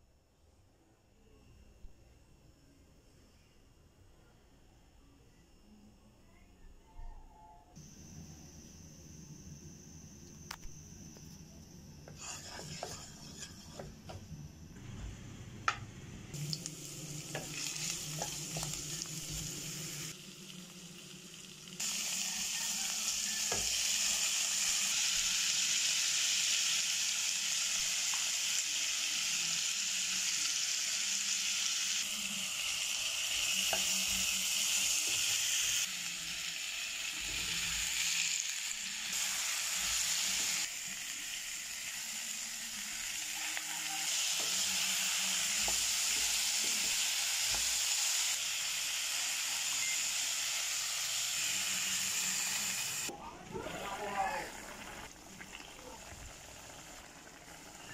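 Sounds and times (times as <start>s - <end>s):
vegetables sizzling in hot oil: 12.0s - 14.2s, 16.3s - 57.9s.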